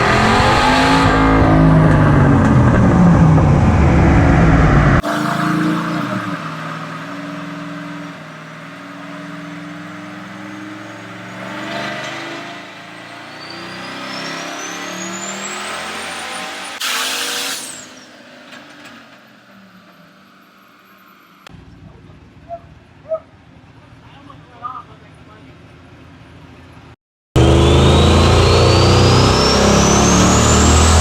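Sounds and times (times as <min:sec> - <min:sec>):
engine running: 0:00.0 - 0:13.8, 0:21.4 - 0:31.0.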